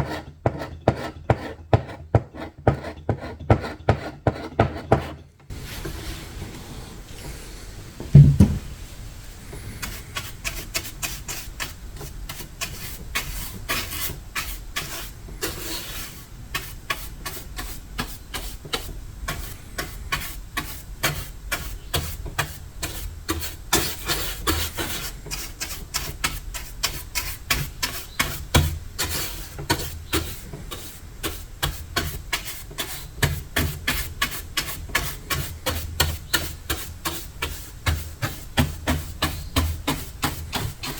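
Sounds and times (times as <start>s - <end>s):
rasping sanding strokes: 0.0s - 6.4s, 9.8s - 18.6s, 19.3s - 40.9s
loud knock: 8.1s - 8.7s.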